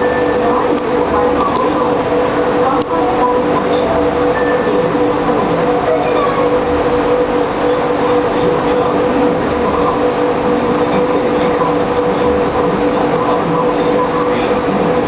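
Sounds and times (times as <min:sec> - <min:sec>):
constant tones: 0:00.0 - 0:15.0
mechanical hum: 0:00.0 - 0:15.0.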